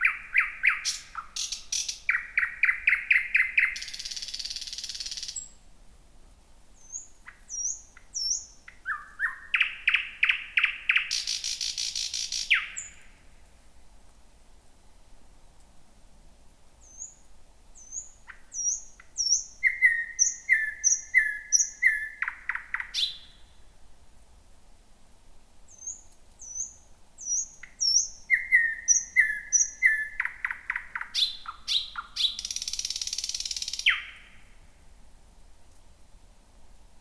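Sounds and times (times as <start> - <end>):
bird singing whistled notes: 0.0 - 5.6, 6.8 - 13.2, 16.8 - 17.2, 17.8 - 23.6, 25.7 - 34.6.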